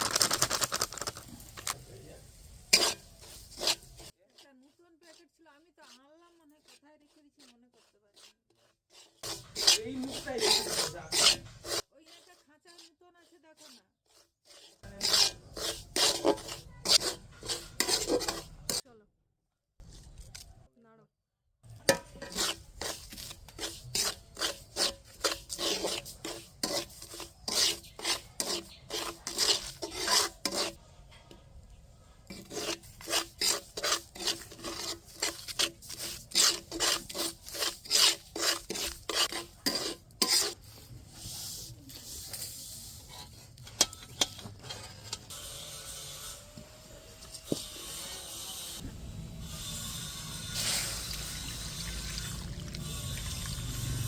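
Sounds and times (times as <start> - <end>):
soft steady rustle: 0.0 - 18.8
spatula scraping semolina in pan: 0.0 - 18.8, 21.7 - 54.0.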